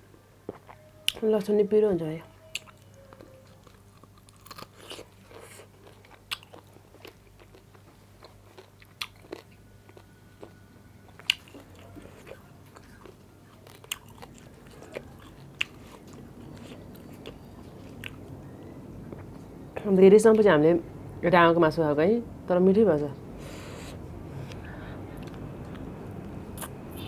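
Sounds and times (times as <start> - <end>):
wet chewing: 2.5 - 18.4.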